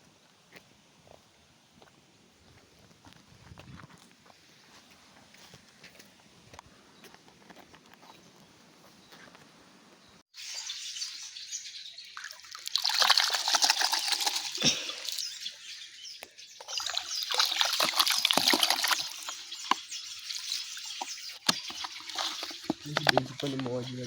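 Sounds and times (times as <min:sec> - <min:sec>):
water splashing and trickling: 0:10.3 - 0:24.0.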